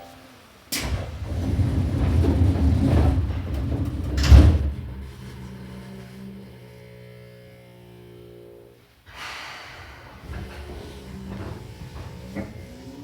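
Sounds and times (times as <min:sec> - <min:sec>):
train doors closing with bang: 0:00.0 - 0:05.0
train humming: 0:00.0 - 0:05.4.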